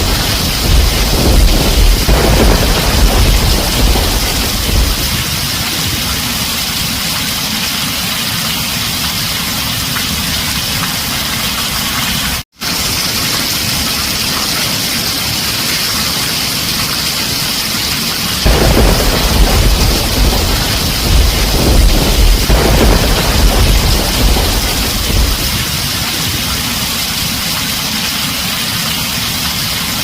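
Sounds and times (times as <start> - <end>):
low rumble of thunder: 0.0 - 6.6, 18.4 - 27.2
heavy rain on a tin roof: 0.0 - 30.0.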